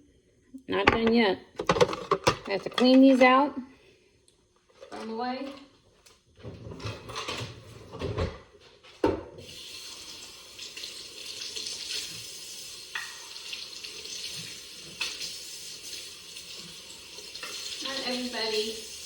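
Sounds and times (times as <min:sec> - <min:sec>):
faucet running into a sink: 0:09.4 - 0:19.0.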